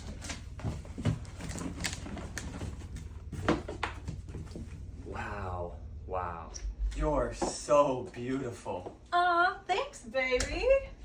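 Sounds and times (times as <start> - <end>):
packaging rustling: 0.0 - 4.6
steady low hum: 0.0 - 11.0.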